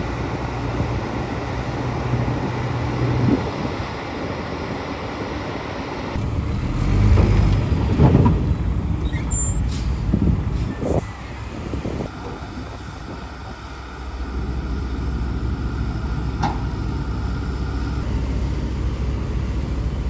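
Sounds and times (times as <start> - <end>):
diesel machinery rumbling: 0.0 - 20.0
faint high squeaks: 9.0 - 9.9.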